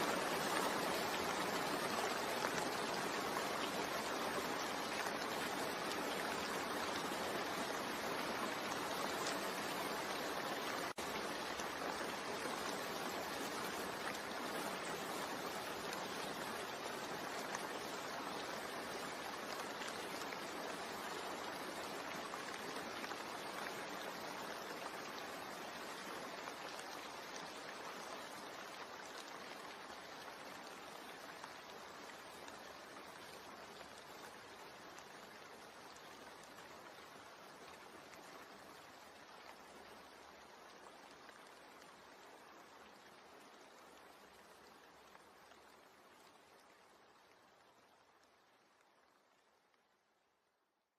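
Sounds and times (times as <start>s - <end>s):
rain falling: 0.0s - 50.3s.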